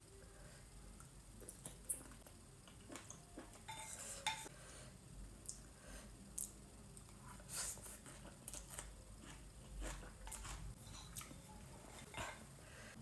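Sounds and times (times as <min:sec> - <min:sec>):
person chewing and biting: 0:08.1 - 0:11.3.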